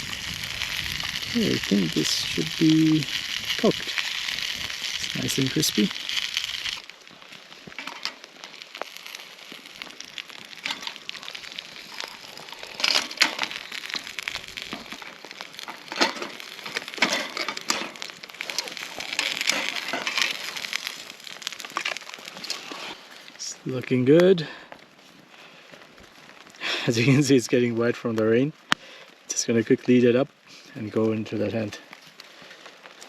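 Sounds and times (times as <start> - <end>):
chicken frying in oil: 0.0 - 23.7.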